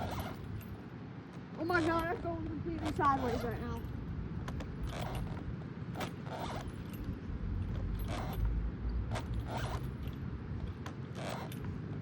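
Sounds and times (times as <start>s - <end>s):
swing creaking: 0.0s - 12.0s.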